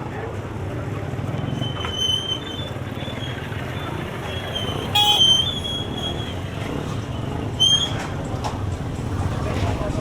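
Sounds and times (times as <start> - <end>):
street traffic: 0.0 - 10.0
vehicle horn toot: 4.9 - 5.6.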